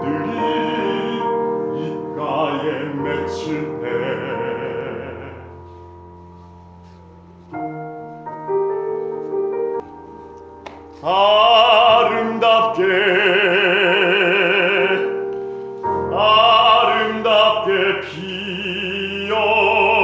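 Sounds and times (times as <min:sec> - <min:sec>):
man singing operatically: 0:00.0 - 0:05.6, 0:11.0 - 0:15.2, 0:16.1 - 0:20.0
piano chords: 0:00.0 - 0:20.0.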